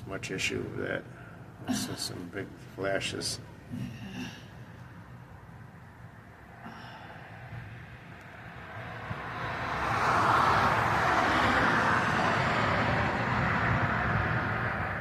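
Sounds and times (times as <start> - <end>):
vehicle passing by: 7.1 - 15.0.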